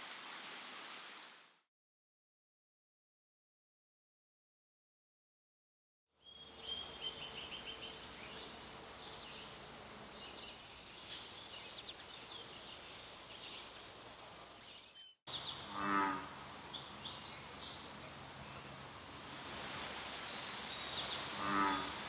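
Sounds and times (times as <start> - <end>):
songbirds singing: 6.2 - 18.9, 20.1 - 22.0.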